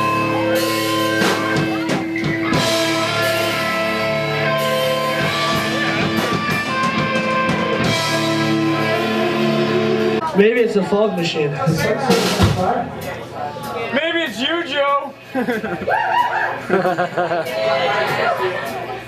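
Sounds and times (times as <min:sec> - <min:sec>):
electric guitar: 0:00.0 - 0:10.4
drum kit: 0:00.0 - 0:19.0.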